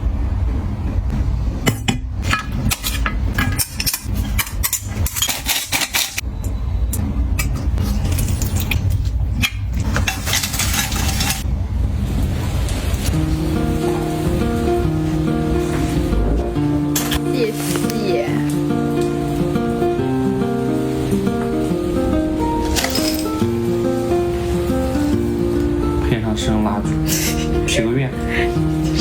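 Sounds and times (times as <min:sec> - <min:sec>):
dishes and utensils clinking: 0:01.6 - 0:06.2, 0:07.4 - 0:11.5, 0:16.8 - 0:19.8, 0:22.6 - 0:23.7.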